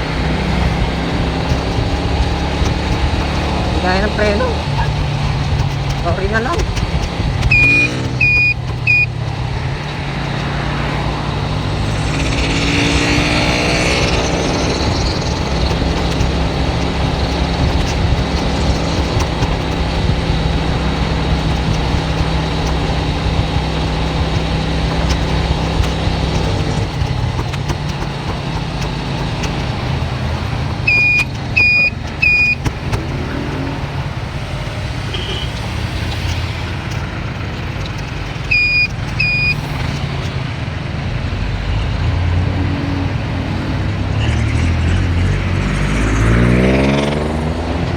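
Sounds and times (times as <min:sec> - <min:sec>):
car engine and tyre drone: 0:00.0 - 0:47.9
high-pitched electronic beeps: 0:07.4 - 0:09.2, 0:11.6 - 0:19.8, 0:30.9 - 0:32.7, 0:34.9 - 0:39.8.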